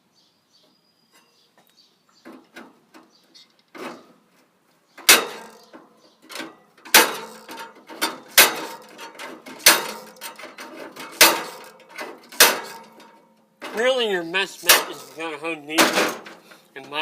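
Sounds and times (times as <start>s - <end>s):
sharp metallic cracks: 5.0s - 16.7s
small clicks and scrapes: 5.3s - 13.8s.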